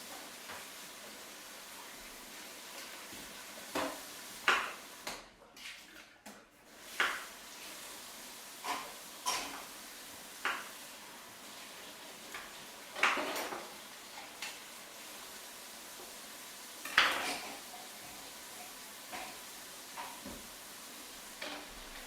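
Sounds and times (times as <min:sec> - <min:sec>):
kitchenware clinking: 0:08.6 - 0:09.7, 0:12.3 - 0:14.6, 0:16.8 - 0:20.5, 0:21.4 - 0:22.0.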